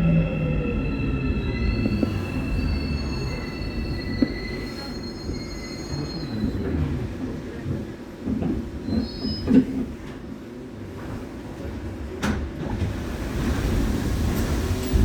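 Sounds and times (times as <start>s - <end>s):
train inverter and wheel tones: 0.0s - 15.0s
train running rumble: 0.0s - 15.0s
train clunks: 11.0s - 15.0s.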